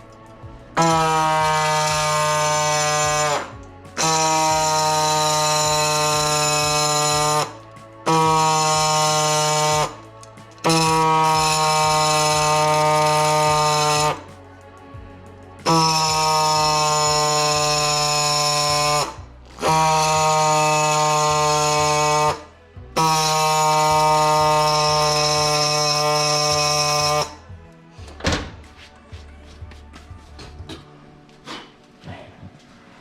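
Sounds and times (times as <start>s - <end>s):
power tool motor whine: 0.8s - 10.0s, 10.6s - 14.3s, 15.7s - 27.4s.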